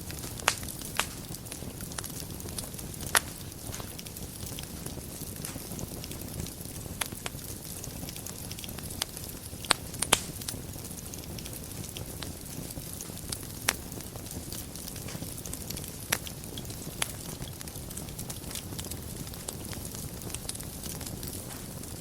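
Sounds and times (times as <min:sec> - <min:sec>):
fire crackling and popping: 0:00.0 - 0:22.0
fire flames hissing and rumbling: 0:00.0 - 0:22.0.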